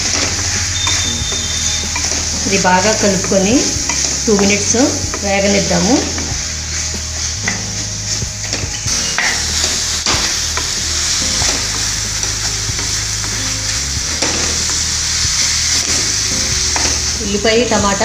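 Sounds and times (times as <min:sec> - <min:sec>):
spatula tapping pan: 0:00.0 - 0:06.4
vegetables sizzling in oil: 0:00.0 - 0:18.0.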